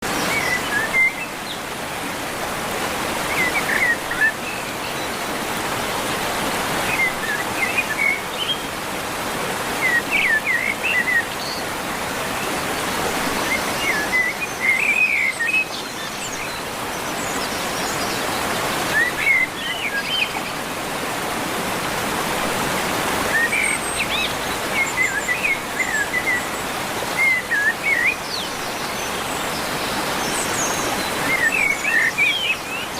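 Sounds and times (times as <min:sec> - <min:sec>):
birds chirping: 0:00.0 - 0:21.8, 0:22.6 - 0:32.9.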